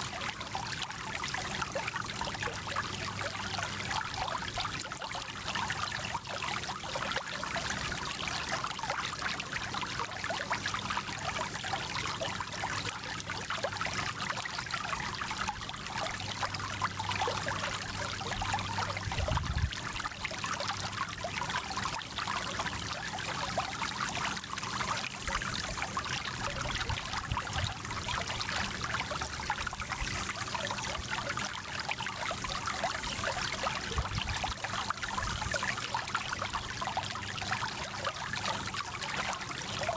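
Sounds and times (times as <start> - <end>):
stream flowing and trickling: 0.0 - 39.9.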